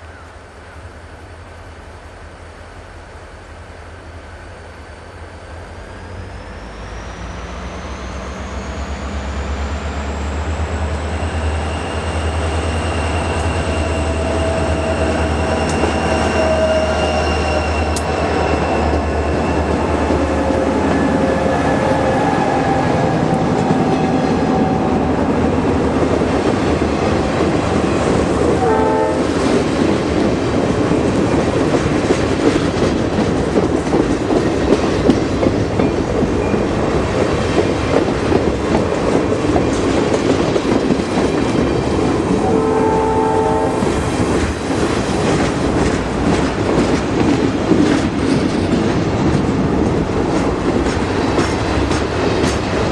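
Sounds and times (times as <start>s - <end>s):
freight train wheels clattering: 10.2s - 42.5s, 43.8s - 52.9s
train horn blast: 14.1s - 19.2s, 28.4s - 29.6s, 42.3s - 44.1s.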